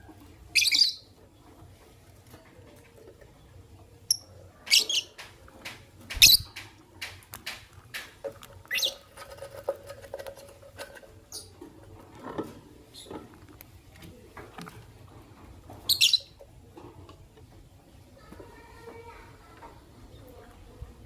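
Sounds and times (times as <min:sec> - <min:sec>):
lovebirds chirping: 0:00.5 - 0:01.1, 0:04.1 - 0:05.3, 0:06.1 - 0:06.6, 0:15.9 - 0:16.4
small clicks and taps: 0:05.2 - 0:08.6.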